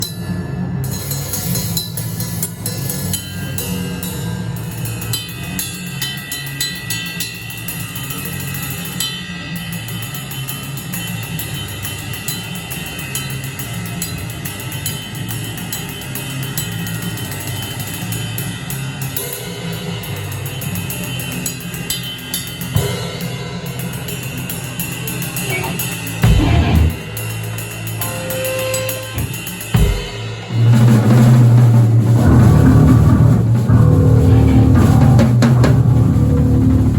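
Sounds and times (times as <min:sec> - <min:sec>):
heavy low drum hits: 0:25.7 - 0:27.2, 0:29.2 - 0:36.9
low hum: 0:30.4 - 0:36.9.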